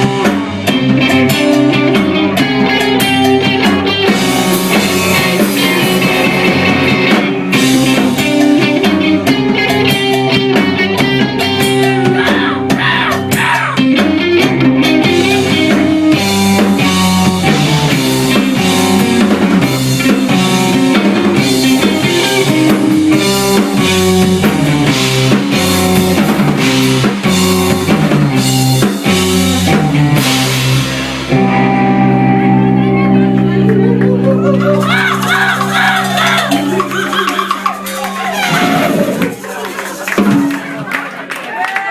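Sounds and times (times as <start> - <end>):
rock band playing live: 0.0 - 41.9
drum hits: 34.8 - 39.6.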